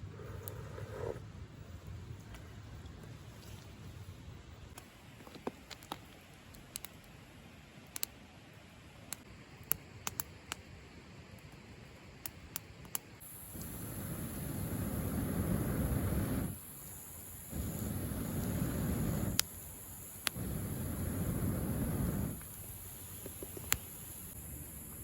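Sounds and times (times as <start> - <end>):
sharp clicks and pops: 4.7 - 7.2, 9.1 - 10.6, 17.6 - 19.6, 23.2 - 24.0
steady rushing noise: 13.5 - 16.6, 17.5 - 19.4, 20.3 - 22.4.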